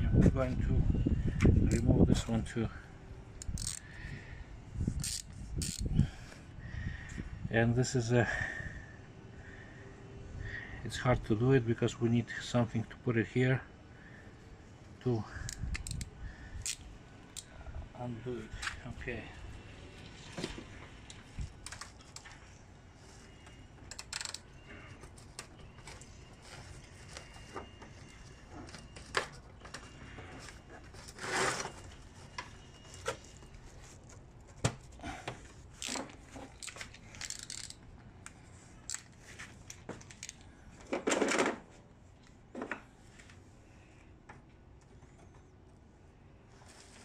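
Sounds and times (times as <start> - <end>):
tools and metal parts clinking: 3.4 - 3.8, 5.0 - 5.9, 23.9 - 26.0, 35.8 - 37.8, 38.9 - 40.5.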